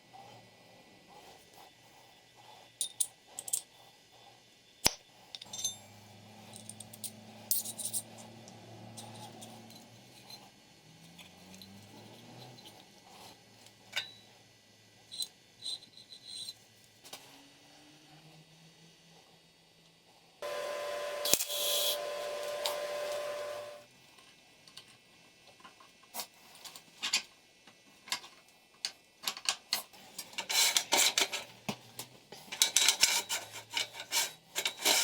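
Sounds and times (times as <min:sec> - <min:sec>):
metal parts and tools clinking: 0:05.3 - 0:05.9, 0:06.5 - 0:08.2, 0:32.4 - 0:35.0.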